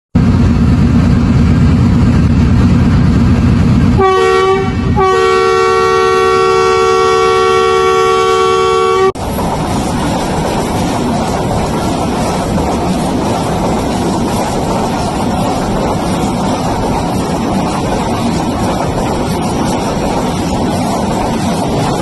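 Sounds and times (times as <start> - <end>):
train rumbling: 0.2 - 22.0
train horn blasts: 4.0 - 9.2.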